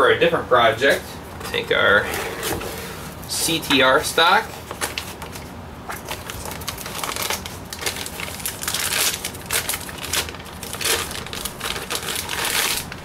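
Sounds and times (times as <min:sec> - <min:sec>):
packaging crinkling and rustling: 0:02.4 - 0:13.0.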